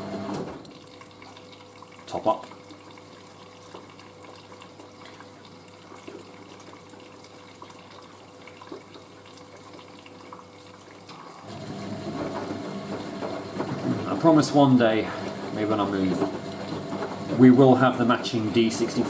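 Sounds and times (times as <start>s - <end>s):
water running into washing machine: 0.0s - 19.0s
steady machine hum: 11.4s - 19.0s.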